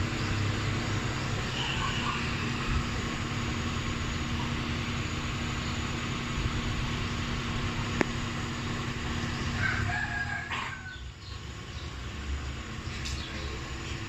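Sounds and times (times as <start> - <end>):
vehicle running with low rumble: 0.0 - 14.0.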